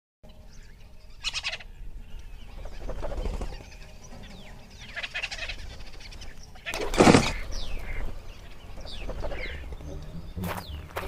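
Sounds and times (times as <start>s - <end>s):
bird rattling call: 4.8s - 9.8s.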